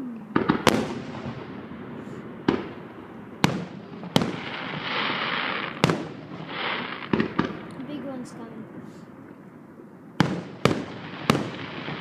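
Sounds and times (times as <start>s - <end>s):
fireworks bangs: 0.3s - 9.0s, 10.2s - 12.0s
fireworks hiss: 3.4s - 7.5s.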